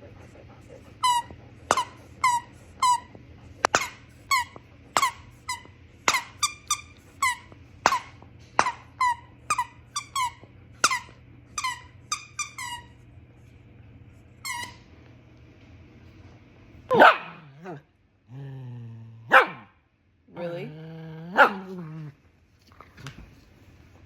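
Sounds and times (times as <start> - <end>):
squeaky dog toy squeaking: 1.0 - 3.1, 3.7 - 13.0, 14.4 - 14.8.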